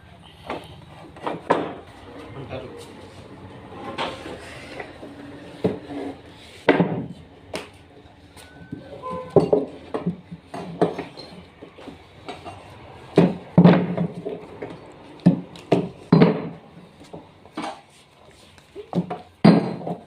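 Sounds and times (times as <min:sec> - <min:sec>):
wood and tools knocking: 0:00.5 - 0:01.9, 0:03.8 - 0:07.8, 0:08.7 - 0:17.9, 0:18.8 - 0:20.0.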